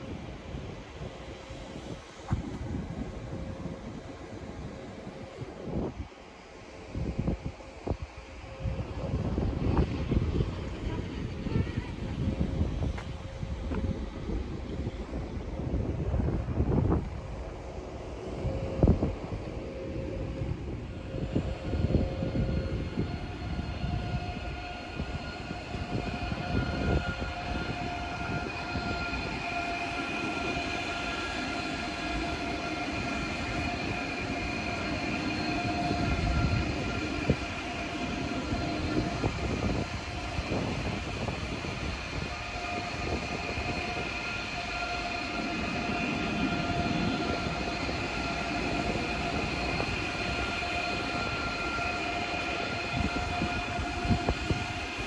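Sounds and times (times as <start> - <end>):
train wheels rumbling on rails: 0.0 - 55.0
steady high tones: 23.2 - 54.1.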